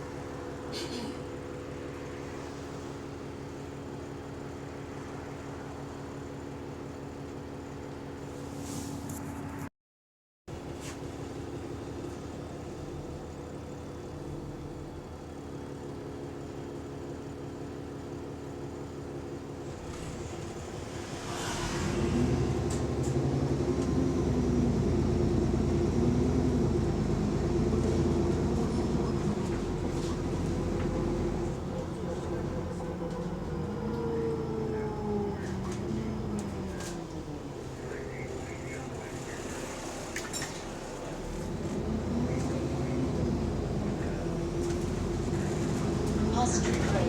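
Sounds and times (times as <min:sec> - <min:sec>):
diesel bus engine under load: 0:00.0 - 0:08.6, 0:10.5 - 0:47.0.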